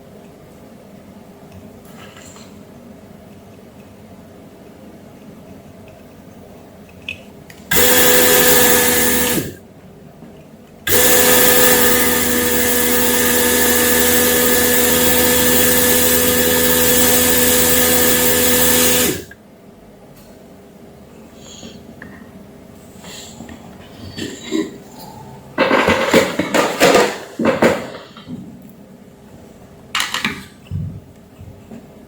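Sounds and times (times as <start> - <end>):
electric motor fan running: 7.7 - 9.6, 10.8 - 19.4.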